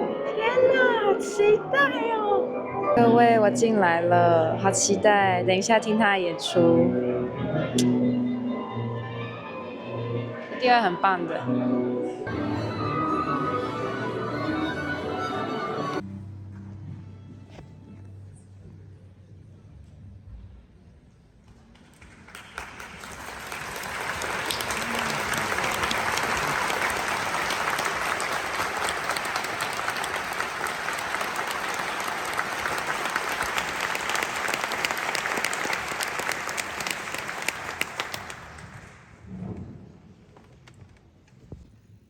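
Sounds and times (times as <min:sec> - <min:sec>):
audience applauding: 0:21.9 - 0:39.2.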